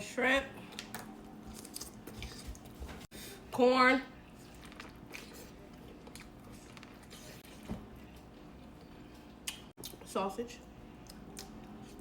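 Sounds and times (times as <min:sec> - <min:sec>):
soft chewing: 0:04.3 - 0:10.0.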